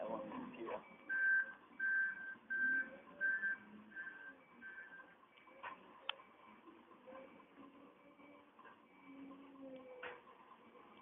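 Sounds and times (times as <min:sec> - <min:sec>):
vehicle reversing alarm beeps: 0:00.0 - 0:10.0.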